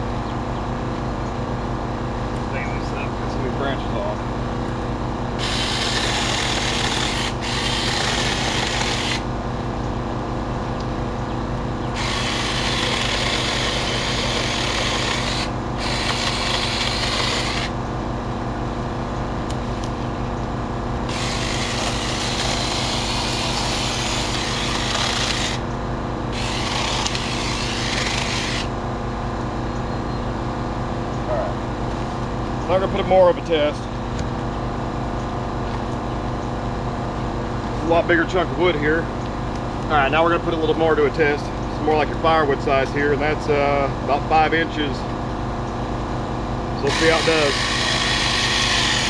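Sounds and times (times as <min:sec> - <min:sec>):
low motor hum: 0:00.0 - 0:49.0
chainsaw rasping through wood: 0:05.4 - 0:09.3, 0:11.9 - 0:17.8, 0:21.1 - 0:25.7, 0:26.3 - 0:28.7, 0:46.8 - 0:49.0.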